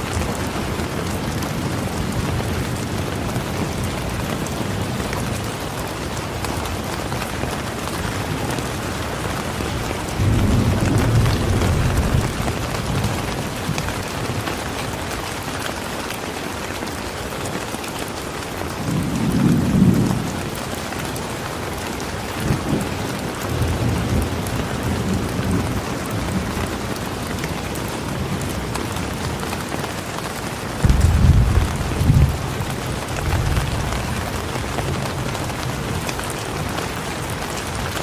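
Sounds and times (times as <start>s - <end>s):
rainfall hissing: 0.0s - 38.0s
thunder rumbling: 9.5s - 14.1s, 30.8s - 36.7s.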